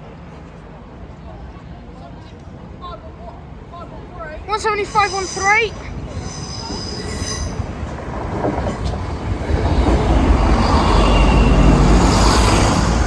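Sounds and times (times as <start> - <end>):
train rumbling: 0.0 - 13.0
train wheel squeal: 4.5 - 13.0.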